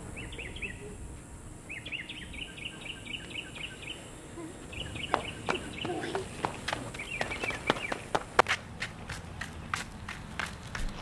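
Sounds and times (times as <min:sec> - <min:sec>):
bird chirping: 0:00.0 - 0:01.0, 0:01.6 - 0:08.2
outdoor background noise: 0:00.0 - 0:11.0.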